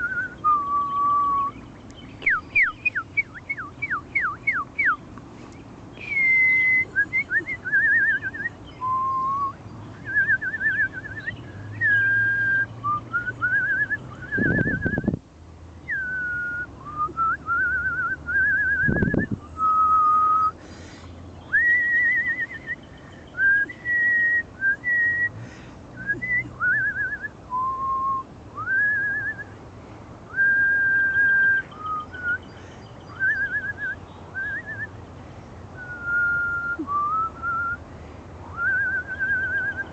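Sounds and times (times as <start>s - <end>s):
woman whistling: 0.0s - 1.5s, 6.0s - 15.1s, 15.9s - 20.6s, 21.5s - 22.8s, 23.4s - 25.3s, 26.0s - 29.5s, 30.3s - 32.4s, 33.1s - 34.9s, 35.8s - 37.8s, 38.5s - 39.9s.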